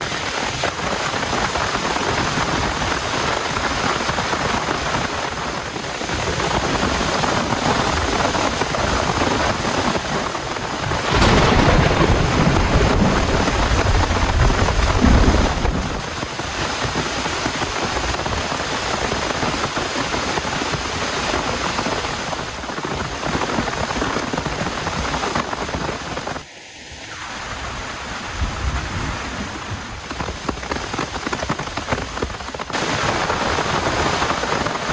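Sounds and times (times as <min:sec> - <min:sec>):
heavy rain falling: 0:00.0 - 0:26.4
thunder rumble: 0:10.5 - 0:16.6.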